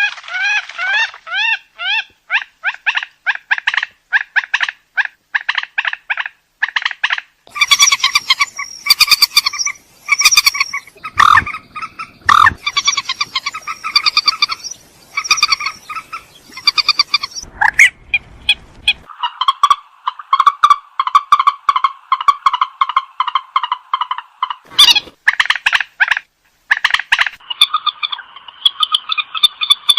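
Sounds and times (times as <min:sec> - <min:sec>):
bird calling in pulsed notes: 0:07.5 - 0:23.7.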